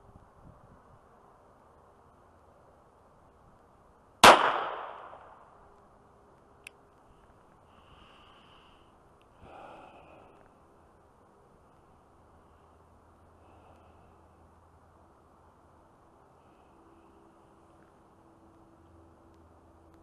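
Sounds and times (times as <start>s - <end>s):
pistol shot: 4.2s - 5.4s.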